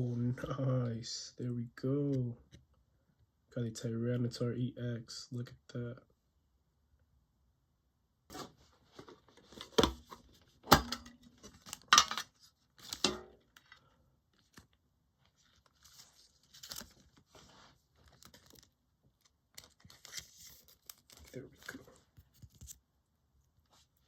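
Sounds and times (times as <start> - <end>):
foil wrapper crinkling: 15.4 - 18.7, 19.5 - 21.8.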